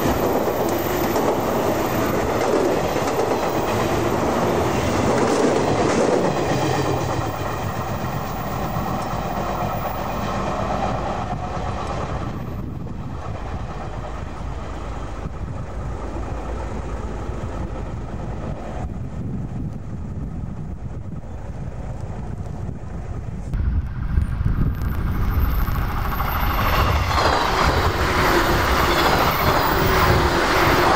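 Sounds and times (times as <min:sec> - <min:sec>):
electric train passing: 0:00.0 - 0:30.9.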